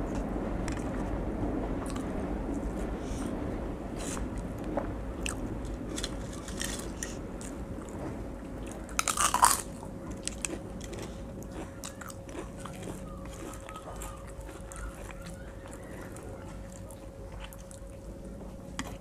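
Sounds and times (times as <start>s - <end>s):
faint steady hum: 0.0s - 19.0s
quiet chewing: 5.2s - 19.0s
crisp crunch of bitten cracker: 5.3s - 7.6s, 8.7s - 17.6s.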